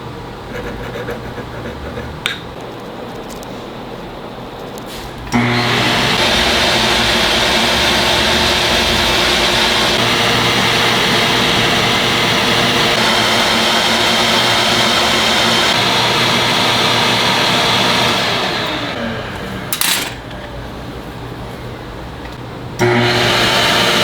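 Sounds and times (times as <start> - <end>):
electric motor running: 5.3 - 19.6, 22.8 - 24.0.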